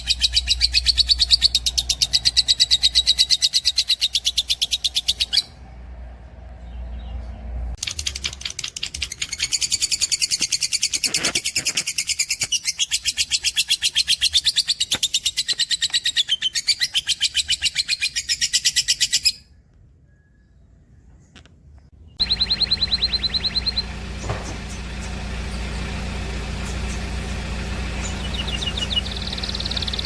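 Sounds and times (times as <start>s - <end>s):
bird trilling high notes: 22.2s - 30.0s.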